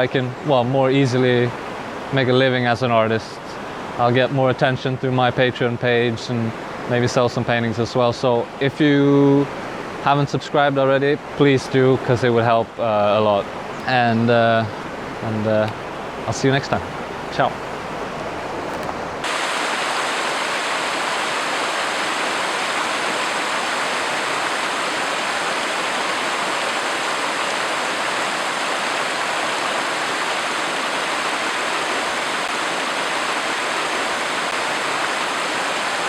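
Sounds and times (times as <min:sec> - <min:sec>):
river water rushing: 0:14.7 - 0:36.0.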